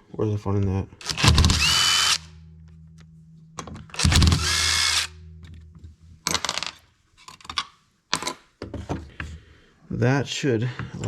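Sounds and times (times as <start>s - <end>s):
small metal parts clicking: 1.0s - 2.2s, 3.9s - 5.1s
power driver whirring: 1.0s - 2.3s, 3.9s - 5.2s.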